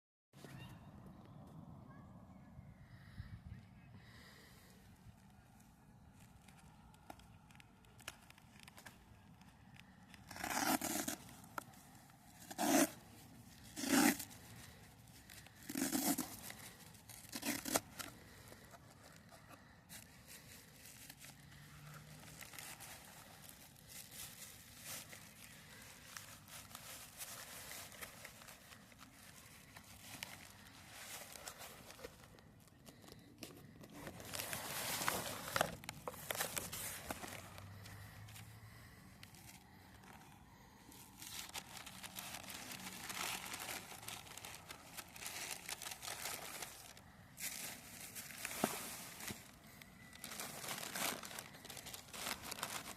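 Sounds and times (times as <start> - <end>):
packaging tearing: 6.6 - 19.3, 41.1 - 52.9.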